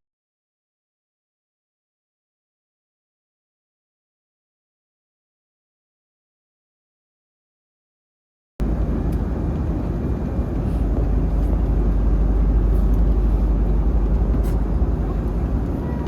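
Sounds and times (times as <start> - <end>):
vehicle cabin rumble: 8.6 - 16.0.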